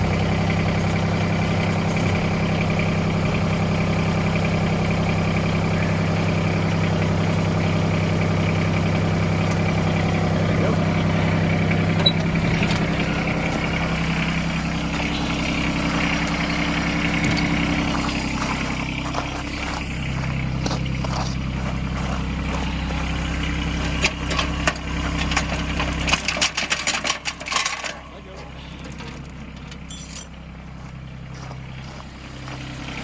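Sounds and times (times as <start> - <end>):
tractor engine idling: 0.0 - 33.0
metallic clinks and clanks: 23.9 - 30.4.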